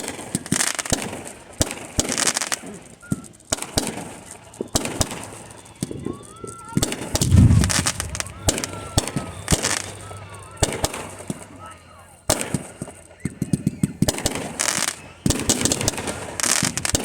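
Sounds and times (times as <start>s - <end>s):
deep firework boom: 7.2s - 10.8s
fireworks bangs and crackling: 7.2s - 11.0s.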